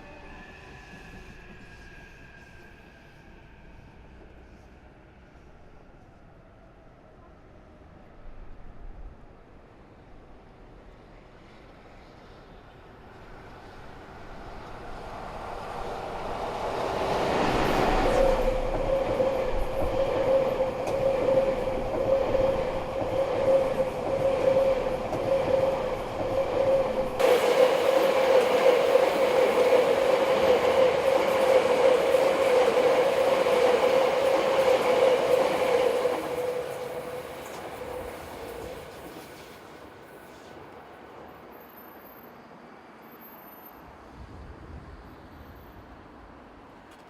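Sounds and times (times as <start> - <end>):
steady train tone: 0.0 - 7.6, 10.5 - 46.6
train wheels rumbling on track: 10.9 - 42.5.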